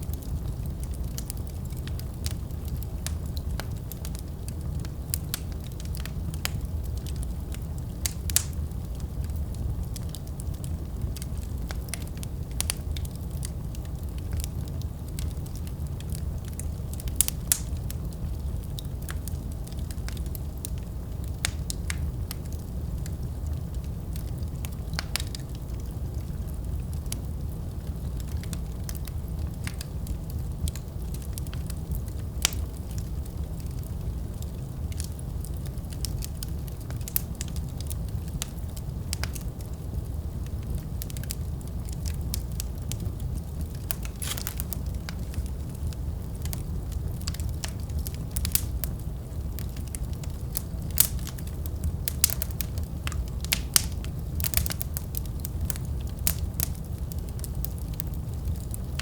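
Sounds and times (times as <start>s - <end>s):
wood fire crackling: 0.0s - 59.0s
sharp pops of fire: 0.1s - 22.6s, 40.8s - 59.0s.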